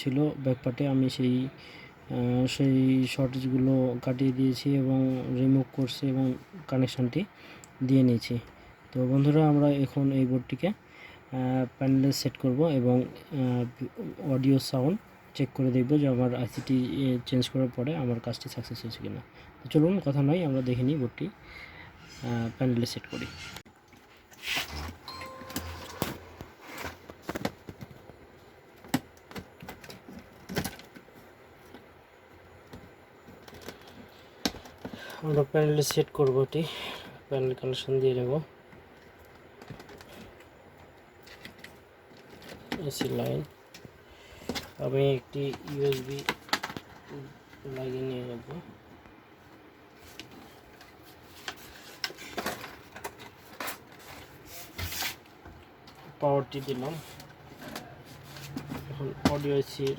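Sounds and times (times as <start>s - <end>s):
clicks and knocks of handled electronics: 25.4s - 31.9s, 32.6s - 36.4s, 38.7s - 44.8s, 45.4s - 47.7s
cables and connectors clicking: 27.1s - 31.9s, 32.6s - 36.5s.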